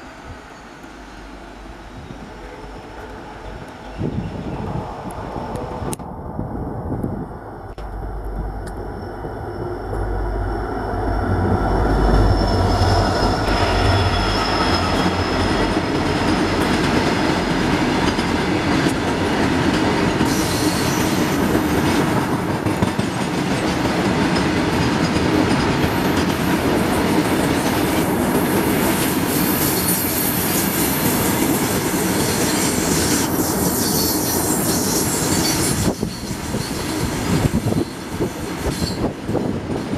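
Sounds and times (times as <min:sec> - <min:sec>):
locomotive engine rumble: 0:01.3 - 0:16.2
high wheel squeal: 0:08.9 - 0:15.8, 0:32.0 - 0:39.1.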